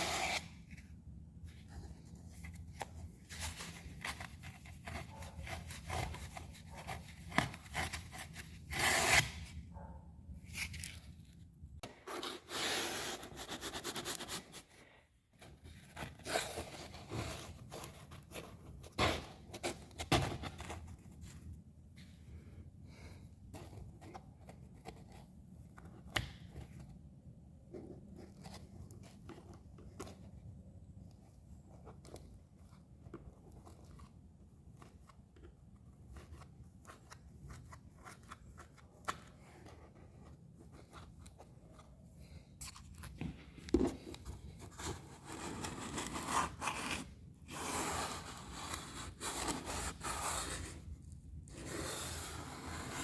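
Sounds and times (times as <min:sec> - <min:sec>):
foam rubbing and scraping: 0:51.5 - 0:53.0.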